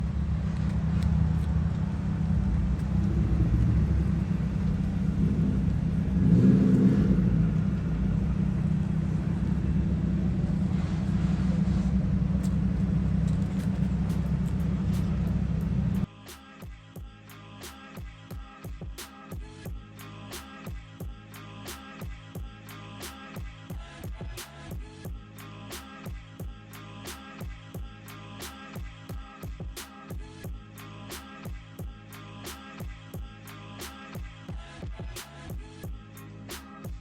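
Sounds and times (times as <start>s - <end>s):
loud low car engine: 0.0s - 16.1s
music: 12.3s - 37.0s.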